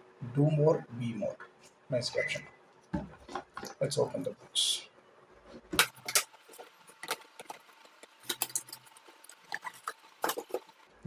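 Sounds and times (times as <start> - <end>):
packaging clicks and crinkles: 5.8 - 10.8.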